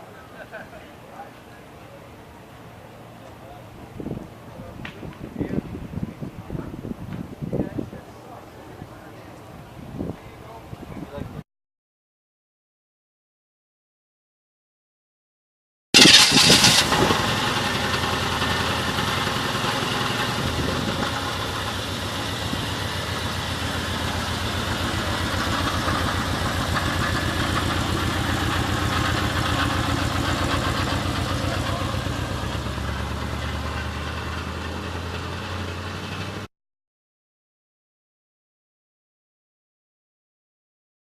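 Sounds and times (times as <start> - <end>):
car engine revving and idling: 16.0 - 36.5.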